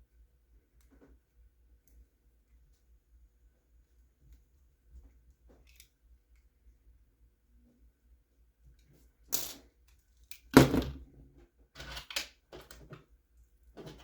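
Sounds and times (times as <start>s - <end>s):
plastic parts clicking and knocking: 11.8s - 13.1s, 13.8s - 14.0s.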